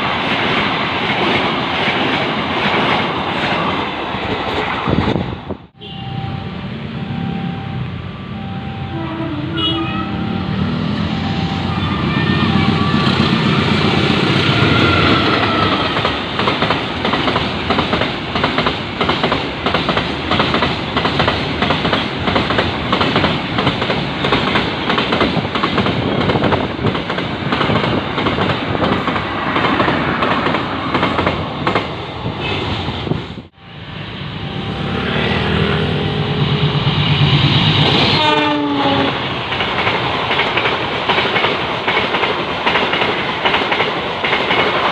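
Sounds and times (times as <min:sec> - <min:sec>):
train horn: 0:08.6 - 0:10.9, 0:11.6 - 0:16.0, 0:38.0 - 0:39.3.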